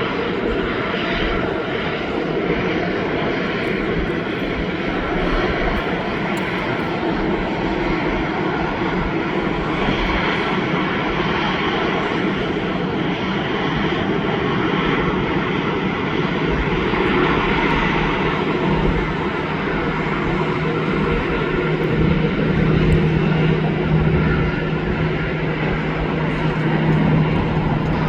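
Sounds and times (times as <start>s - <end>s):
jet engines running: 0.0s - 28.0s.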